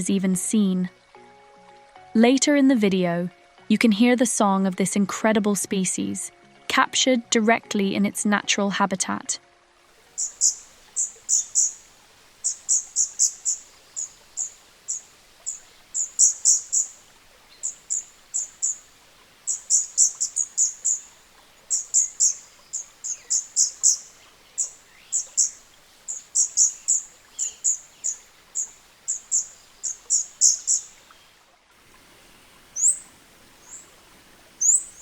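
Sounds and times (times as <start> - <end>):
bird calling high sharp notes: 10.1 - 31.0, 32.8 - 33.0, 34.6 - 35.0.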